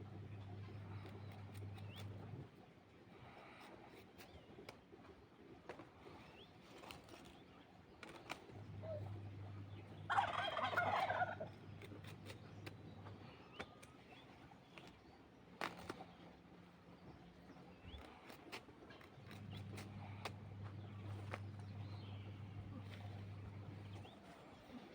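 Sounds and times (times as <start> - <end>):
turkey gobbling: 10.1 - 11.5.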